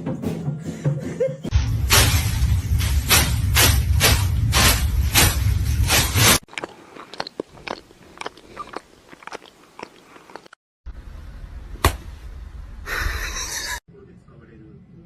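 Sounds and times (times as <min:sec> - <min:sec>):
low rumble: 0:01.5 - 0:06.4, 0:10.9 - 0:13.3
rhythmic whooshing with deep rumble: 0:01.5 - 0:06.4.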